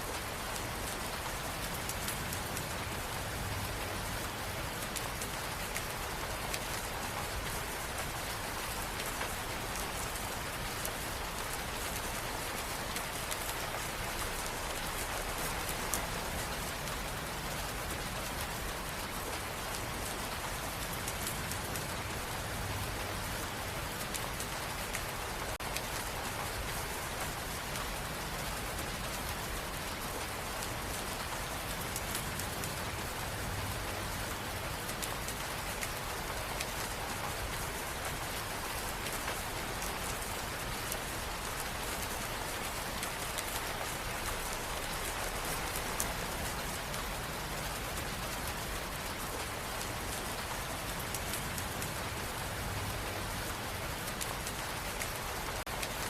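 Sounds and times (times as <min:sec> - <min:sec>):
rain on hard surfaces: 0:00.0 - 0:56.0.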